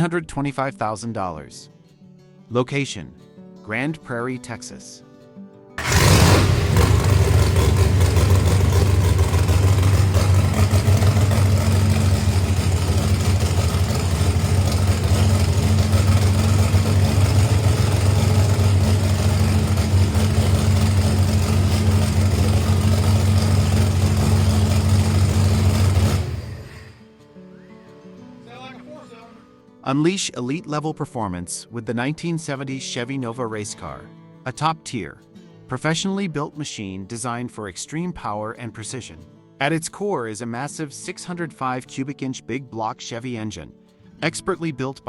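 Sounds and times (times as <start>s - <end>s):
race car engine idling: 5.8s - 26.9s.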